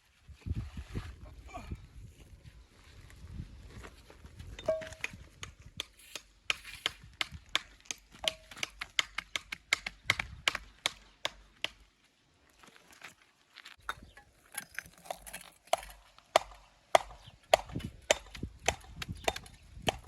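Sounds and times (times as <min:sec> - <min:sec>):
hammer striking stone: 0:07.2 - 0:11.8, 0:13.9 - 0:20.0.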